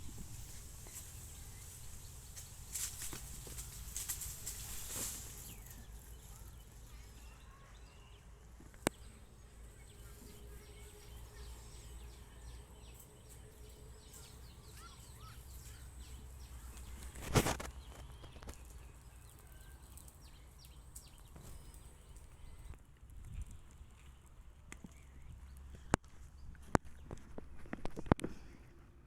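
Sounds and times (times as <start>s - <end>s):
grass being torn: 0.0s - 6.3s, 16.7s - 18.6s.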